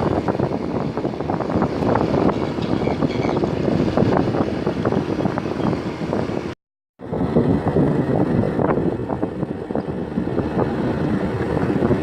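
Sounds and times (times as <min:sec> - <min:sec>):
moving vehicle rumble: 0:00.0 - 0:12.0
wind buffeting microphone: 0:00.0 - 0:12.0.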